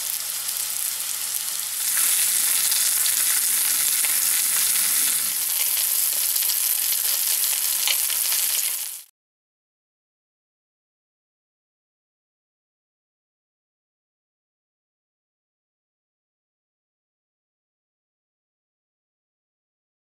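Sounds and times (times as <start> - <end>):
meat sizzling in a pan: 0.0 - 9.1.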